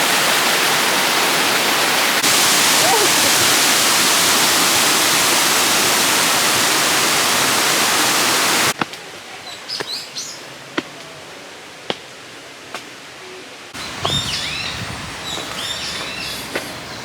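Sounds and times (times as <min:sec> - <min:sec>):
waterfall rushing: 0:00.0 - 0:08.8
outdoor background: 0:00.0 - 0:17.0.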